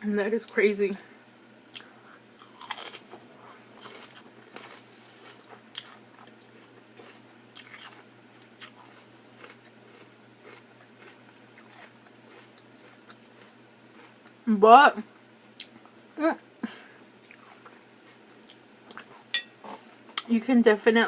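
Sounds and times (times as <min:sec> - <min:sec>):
person chewing crunchy food: 0:01.7 - 0:14.4, 0:17.2 - 0:20.3.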